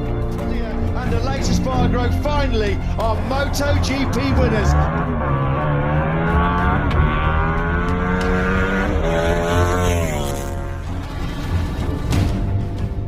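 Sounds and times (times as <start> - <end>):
motorcycle engine accelerating: 2.8 - 13.0.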